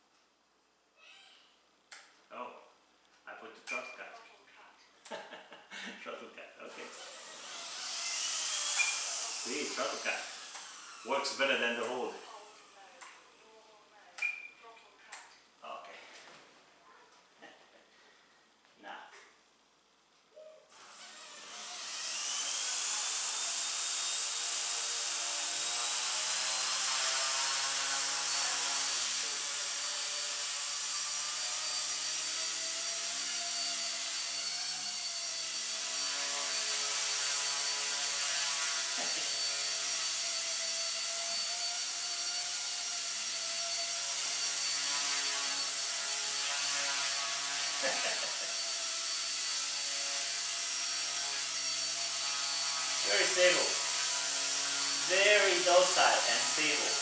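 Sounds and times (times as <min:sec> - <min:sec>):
rc helicopter motors whining: 0:06.8 - 0:13.0, 0:20.8 - 0:57.0.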